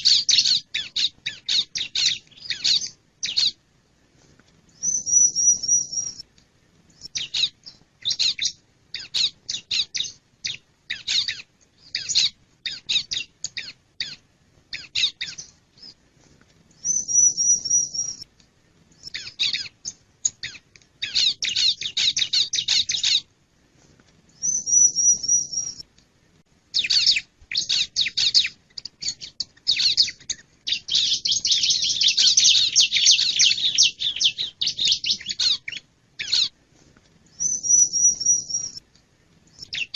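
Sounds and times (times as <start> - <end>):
bird high repeated chirps: 0.0 - 3.6, 4.7 - 6.2, 7.0 - 16.0, 16.8 - 18.3, 19.0 - 23.3, 24.3 - 25.8, 26.7 - 36.6, 37.3 - 38.8, 39.5 - 39.9.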